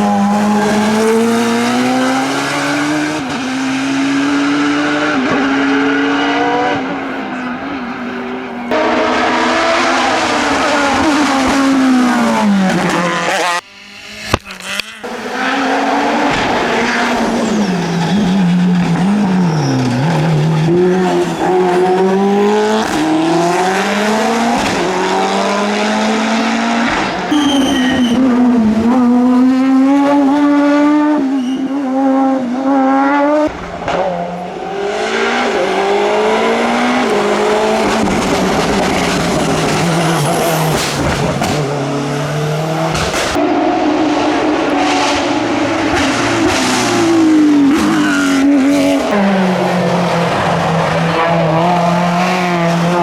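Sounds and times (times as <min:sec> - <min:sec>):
race car engines revving: 0:00.0 - 0:53.0
tyre squeal: 0:15.0 - 0:22.4, 0:27.2 - 0:28.6, 0:31.2 - 0:32.0.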